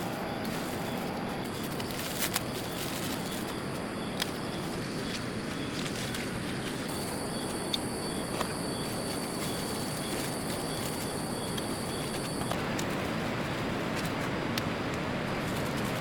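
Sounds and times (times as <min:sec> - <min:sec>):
insect high buzz: 0:00.0 - 0:12.6
steady outdoor noise: 0:00.0 - 0:16.0
insect high chirps: 0:00.1 - 0:06.2, 0:06.8 - 0:12.6.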